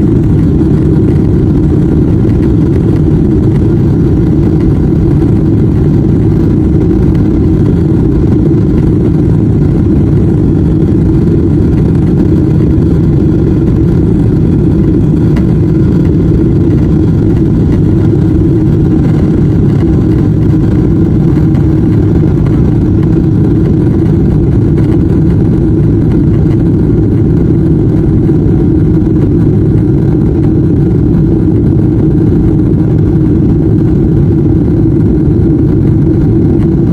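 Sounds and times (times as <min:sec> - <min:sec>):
jet engines roaring: 0:00.0 - 0:36.9.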